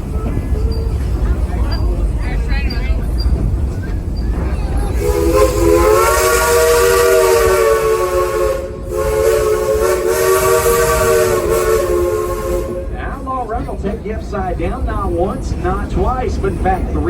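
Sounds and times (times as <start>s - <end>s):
steam hissing: 3.6s - 13.0s
steam locomotive whistle: 4.9s - 13.0s.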